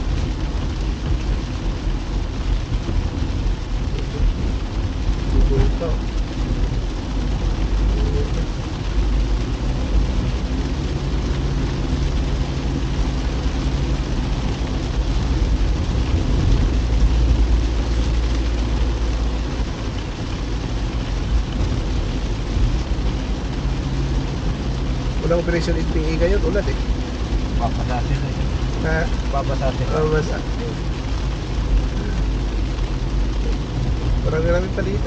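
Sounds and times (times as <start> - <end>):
car engine and tyres rumbling: 0.0 - 35.0
rain and spray hissing: 0.0 - 35.0.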